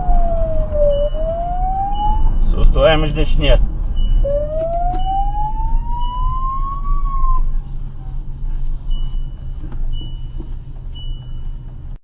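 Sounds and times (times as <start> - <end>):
police siren wail: 0.0 - 2.6, 4.2 - 7.6
vehicle rumble: 0.0 - 12.0
short high beeps: 0.8 - 2.6, 4.0 - 7.5.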